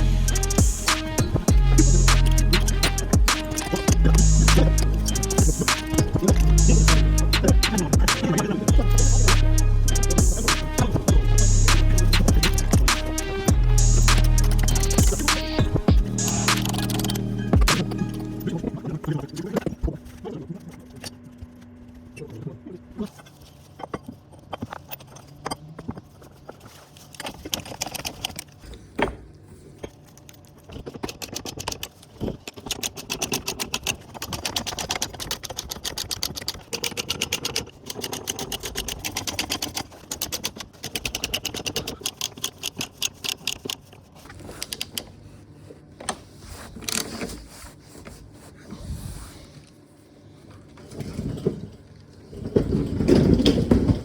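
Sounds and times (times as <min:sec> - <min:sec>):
ratchet wrench clicking: 0:00.3 - 0:08.2, 0:08.8 - 0:18.2.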